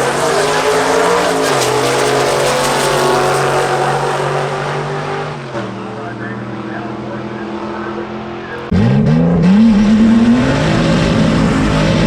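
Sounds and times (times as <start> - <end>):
loud drag racing engine: 0.0 - 12.0.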